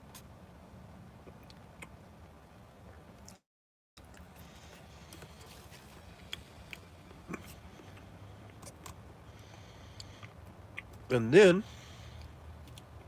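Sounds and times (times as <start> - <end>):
person chewing food: 4.0 - 11.1
low steady hum: 4.0 - 13.0.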